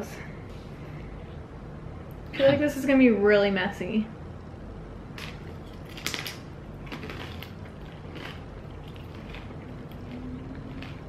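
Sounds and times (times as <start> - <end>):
faint background noise: 0.0 - 11.0
crackly chewing of nachos: 5.2 - 11.0.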